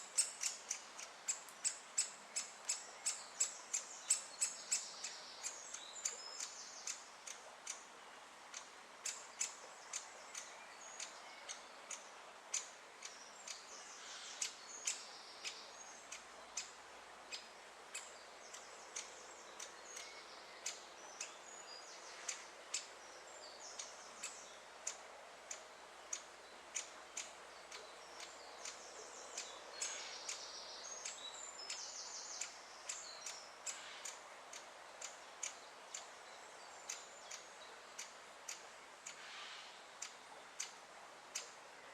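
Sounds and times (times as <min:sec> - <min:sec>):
woodpecker chick ticking calls: 0:00.0 - 0:07.9, 0:08.5 - 0:41.6.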